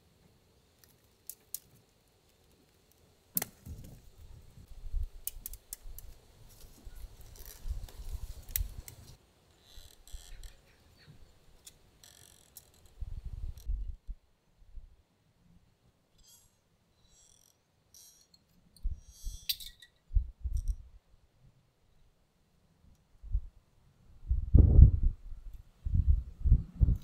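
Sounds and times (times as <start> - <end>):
leaves rustling: 0.6 - 13.0
wooden stakes clicking together: 0.8 - 4.0, 5.2 - 10.6.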